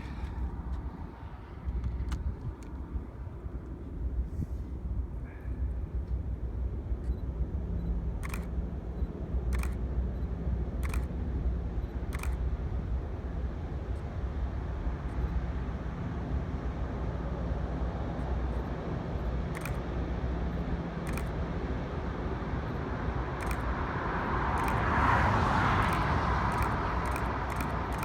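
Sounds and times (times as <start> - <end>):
steady low rumble: 0.0 - 28.0
camera shutter firing: 8.2 - 8.6, 9.5 - 9.8, 10.8 - 11.2, 12.1 - 12.5, 19.5 - 19.9, 21.0 - 21.4, 23.4 - 23.8, 24.6 - 25.0, 25.8 - 28.0.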